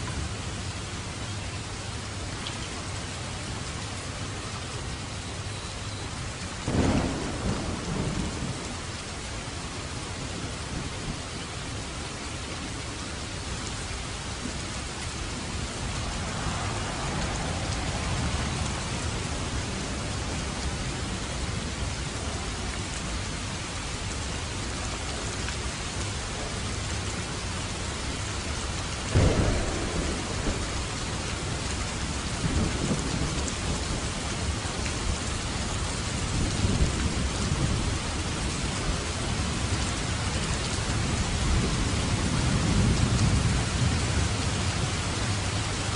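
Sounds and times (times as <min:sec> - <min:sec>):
steady rain falling: 0:00.0 - 0:45.9
thunder crack and rumbles: 0:06.6 - 0:11.8, 0:13.9 - 0:22.5, 0:26.3 - 0:45.7.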